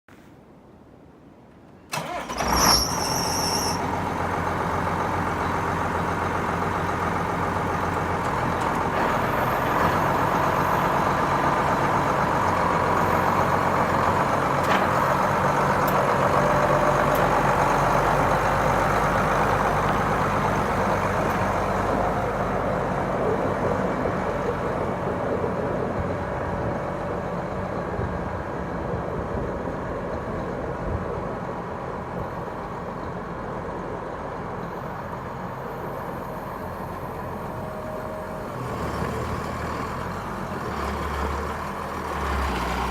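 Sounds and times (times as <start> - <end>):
tractor diesel engine running: 1.9 - 42.9
high-pitched squeal: 2.0 - 4.4.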